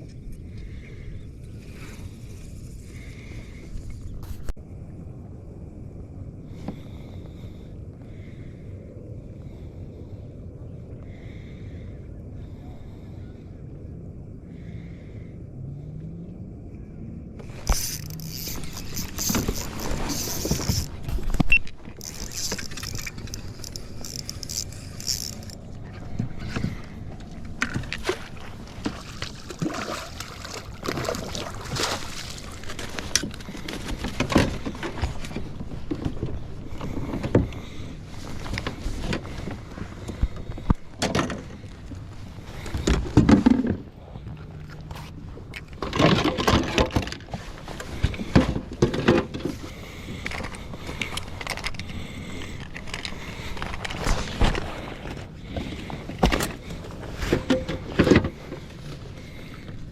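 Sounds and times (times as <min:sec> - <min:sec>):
steady rumbling background: 0:00.0 - 0:59.9
knocks and scrapes on kayak: 0:17.4 - 0:29.6, 0:30.8 - 0:41.6, 0:42.2 - 0:59.2
water splashing: 0:28.0 - 0:33.6.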